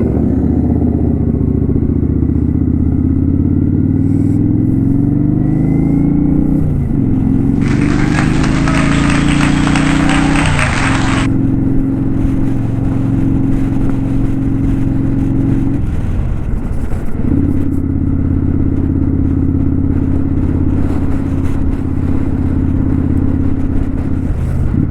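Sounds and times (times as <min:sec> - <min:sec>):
motorcycle engine running: 0:06.8 - 0:24.9.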